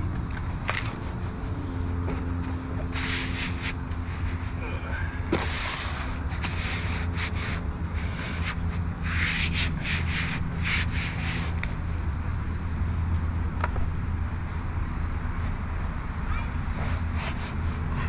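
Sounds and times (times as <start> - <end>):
steady low hum: 0.0 - 18.0
sanding rasping strokes: 2.8 - 4.6, 5.4 - 11.9, 16.9 - 18.0.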